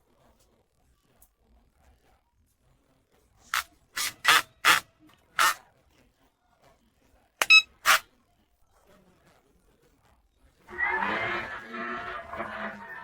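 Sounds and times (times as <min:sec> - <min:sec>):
short hiss bursts: 0:05.4 - 0:05.6.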